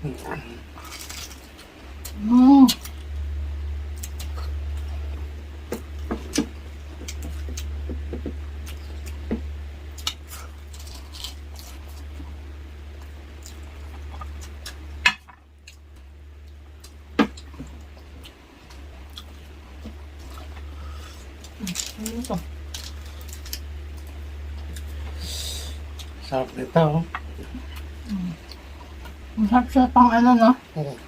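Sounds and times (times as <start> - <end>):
low hum: 0.0 - 31.0
wet chewing and smacking: 13.0 - 25.1.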